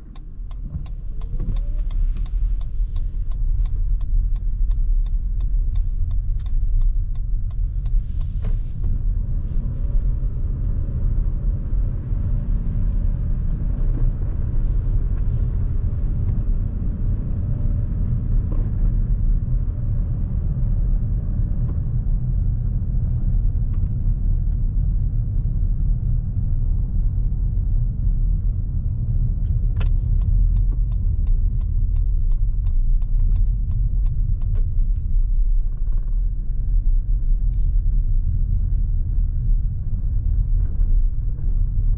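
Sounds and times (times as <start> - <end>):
road and tyre rumble in car: 0.0 - 41.9
turn signal ticking: 0.0 - 41.9.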